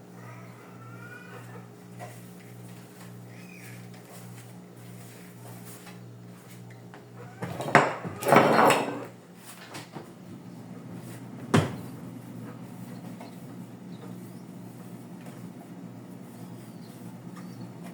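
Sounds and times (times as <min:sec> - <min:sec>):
refrigerator hum: 0:00.0 - 0:17.9.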